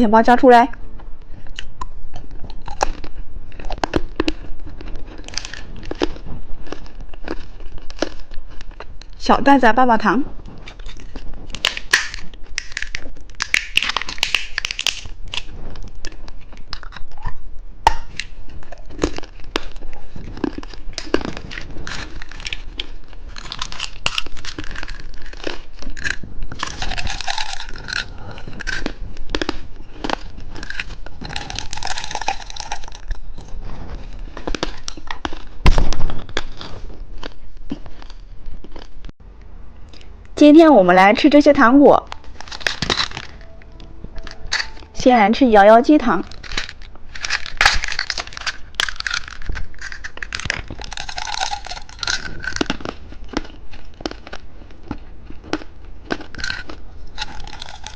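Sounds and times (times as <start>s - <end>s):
plastic wrappers crinkling: 2.6s - 9.3s, 10.6s - 17.1s, 18.1s - 38.2s, 42.2s - 43.6s, 44.2s - 55.0s, 56.1s - 57.9s.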